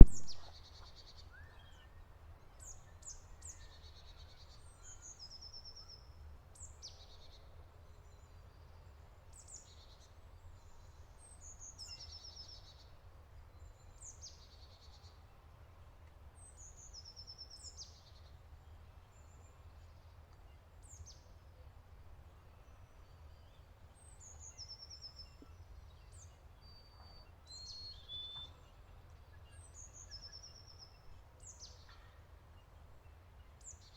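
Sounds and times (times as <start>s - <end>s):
steady low rumble: 0.0s - 0.5s
bird song with trills: 0.0s - 15.5s, 22.3s - 33.9s.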